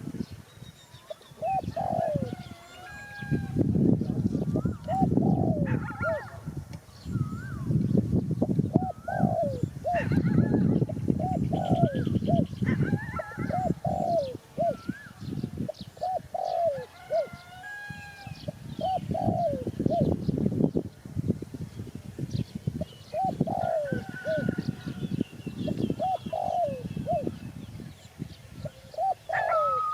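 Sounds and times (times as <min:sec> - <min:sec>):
small birds chirping: 0:00.2 - 0:17.5, 0:21.6 - 0:29.9
dove cooing: 0:01.2 - 0:03.6, 0:04.6 - 0:06.4, 0:08.7 - 0:17.9, 0:18.7 - 0:20.2, 0:23.1 - 0:25.0, 0:25.6 - 0:27.4, 0:28.6 - 0:29.9.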